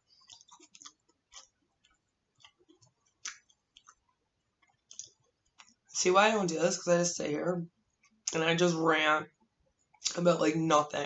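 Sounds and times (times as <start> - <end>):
person chewing crunchy cookie: 0.1 - 4.1.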